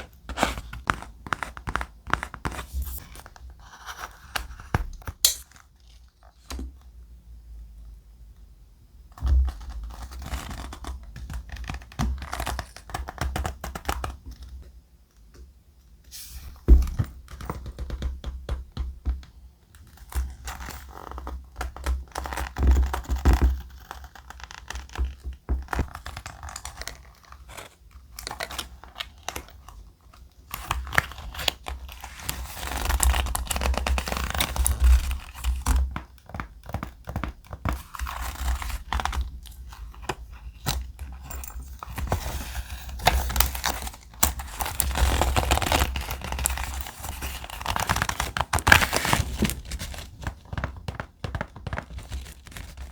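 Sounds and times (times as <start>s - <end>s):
thick paper rustling and crinkling: 42.0s - 52.9s.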